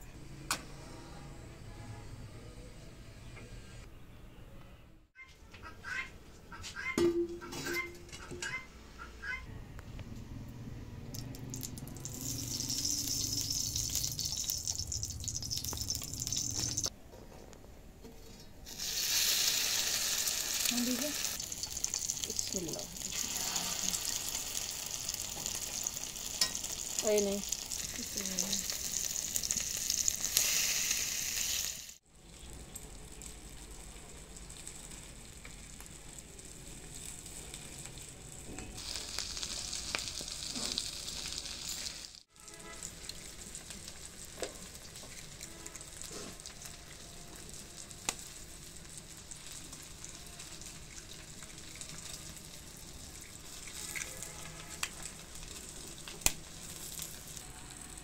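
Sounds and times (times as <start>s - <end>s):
patties sizzling in oil: 11.1s - 16.9s, 18.6s - 58.0s.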